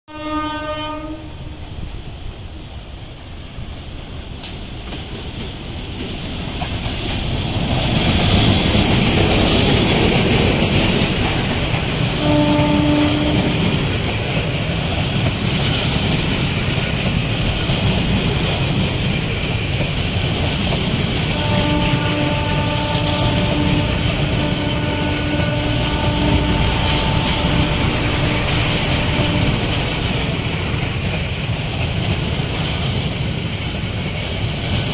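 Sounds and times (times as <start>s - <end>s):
train horn blasts: 0.1s - 1.6s, 12.2s - 13.8s, 21.3s - 30.0s
train wheels clacking: 4.3s - 34.9s.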